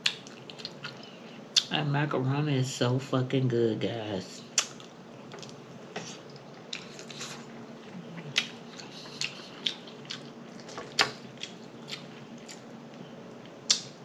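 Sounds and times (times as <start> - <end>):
person chewing food: 0.0 - 1.2, 4.6 - 13.9
mouth clicks: 13.7 - 13.9
wet lip smacks: 13.7 - 13.9.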